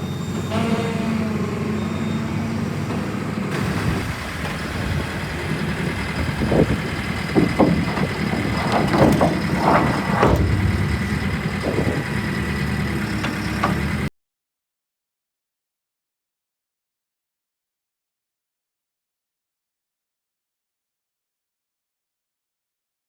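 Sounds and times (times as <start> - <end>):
diesel engine running: 0.0 - 14.1
knocks and clanks: 3.6 - 14.1.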